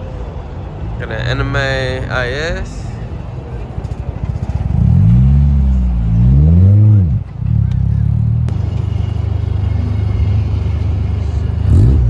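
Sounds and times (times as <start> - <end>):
car engine revving and idling: 2.9 - 12.0.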